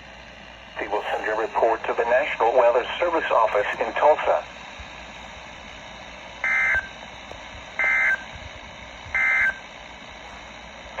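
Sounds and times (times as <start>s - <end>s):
radio hiss: 0.8s - 5.1s.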